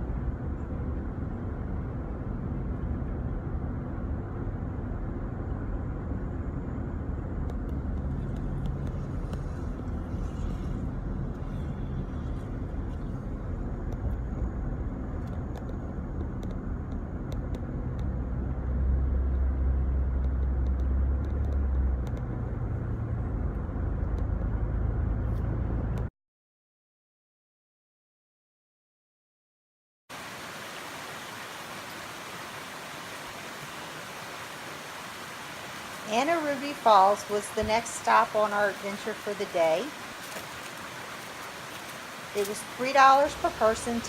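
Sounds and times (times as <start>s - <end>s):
car road noise inside vehicle: 0.0s - 26.1s.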